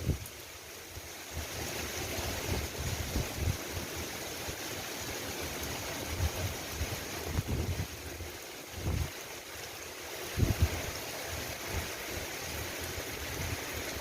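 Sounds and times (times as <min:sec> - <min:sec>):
wind buffeting the microphone: 0:00.0 - 0:00.3, 0:01.3 - 0:03.9, 0:06.0 - 0:09.2, 0:10.2 - 0:14.0
rain falling: 0:00.0 - 0:14.0.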